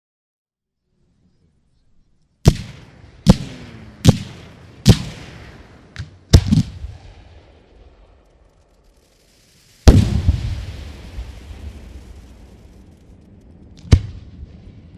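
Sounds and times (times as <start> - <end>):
fireworks bangs with echo: 2.4 - 14.9.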